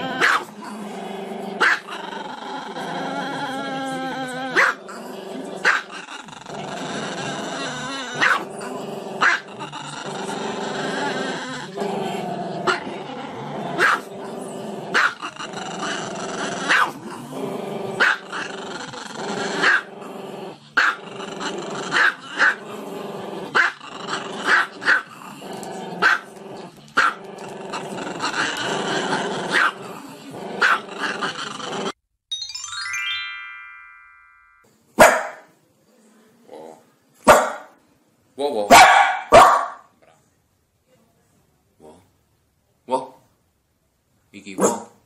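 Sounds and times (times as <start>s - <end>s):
short descending chime: 32.3s - 34.6s
music with sharp accents: 32.3s - 34.7s.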